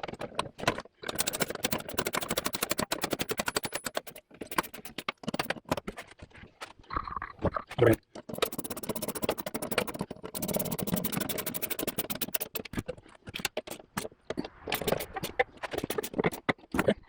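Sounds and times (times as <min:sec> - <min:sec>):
metal tools knocking and clattering: 0:00.0 - 0:06.1
fast run of clicks: 0:00.2 - 0:06.8, 0:07.7 - 0:16.9.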